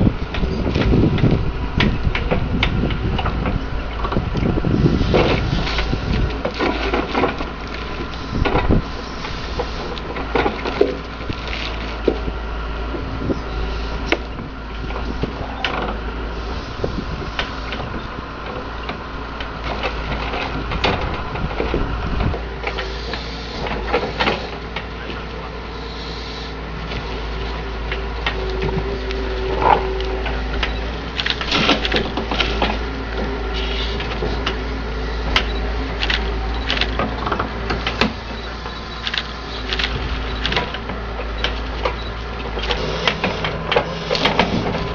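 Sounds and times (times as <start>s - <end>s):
excavator engine and hydraulics: 0.0s - 44.9s
hydraulic whine: 0.0s - 44.9s
logs knocking and clunking: 9.6s - 13.2s, 17.4s - 22.9s, 39.6s - 44.9s.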